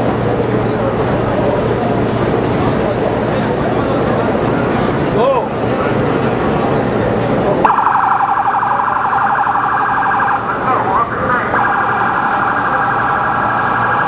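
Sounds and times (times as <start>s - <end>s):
emergency siren yelping and wailing: 7.6s - 14.0s.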